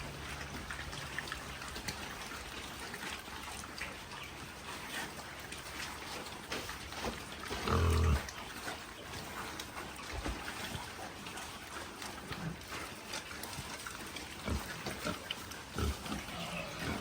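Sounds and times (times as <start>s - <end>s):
low animal call: 16.0s - 17.0s.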